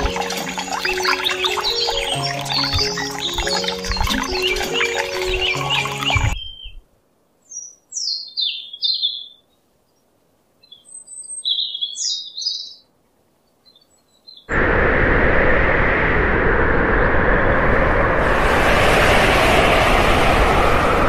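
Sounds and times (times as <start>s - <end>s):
small bird chirping: 0.6s - 6.8s, 7.4s - 10.0s, 10.6s - 14.5s
loud steady rushing noise: 14.5s - 21.0s.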